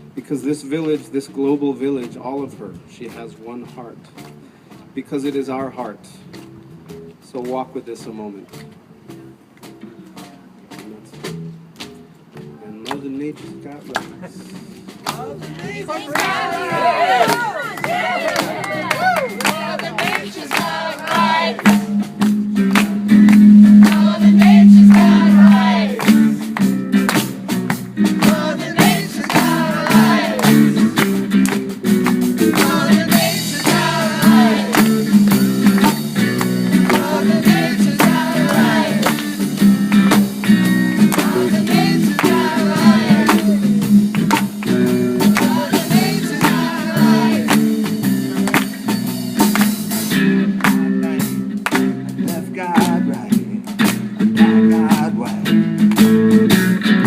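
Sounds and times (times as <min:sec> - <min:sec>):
strummed accompaniment: 0:00.0 - 0:57.0
voices singing: 0:14.2 - 0:26.7, 0:28.0 - 0:31.3, 0:32.2 - 0:48.5.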